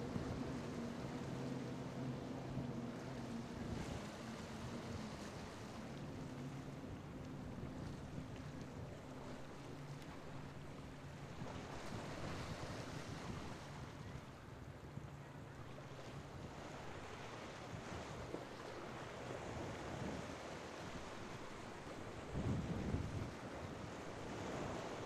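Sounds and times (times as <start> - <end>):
surf washing: 0.0 - 14.6, 15.2 - 25.0
faint boat engine hum: 0.0 - 25.0
wind buffeting microphone: 22.1 - 25.0.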